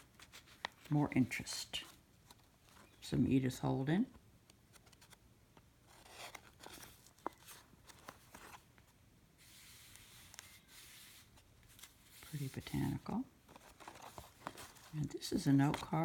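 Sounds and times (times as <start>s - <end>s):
paper pages rustling: 0.0s - 3.0s, 4.6s - 5.2s, 5.8s - 16.0s
soft sliding rustle: 5.9s - 16.0s.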